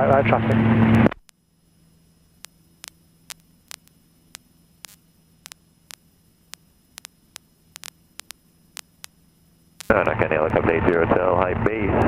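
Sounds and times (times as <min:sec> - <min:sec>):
low steady hum: 0:00.0 - 0:12.0
radio crackling clicks: 0:00.9 - 0:01.4, 0:02.3 - 0:10.7.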